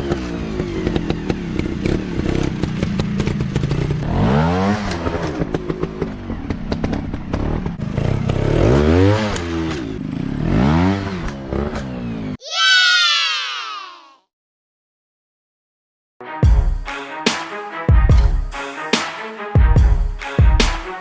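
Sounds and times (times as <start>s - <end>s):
dirt bike engines revving: 0.0s - 12.3s.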